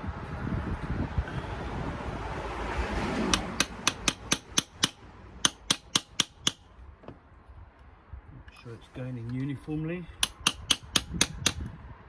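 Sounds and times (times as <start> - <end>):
hammer tapping on a socket: 3.3 - 6.6, 10.2 - 11.7.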